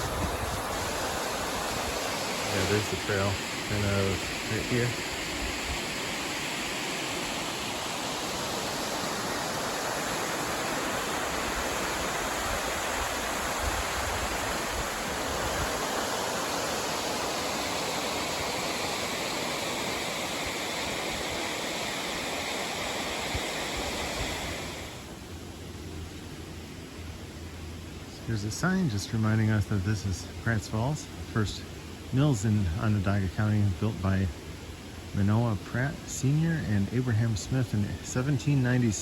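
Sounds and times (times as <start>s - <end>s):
waterfall rushing: 0.0s - 25.1s.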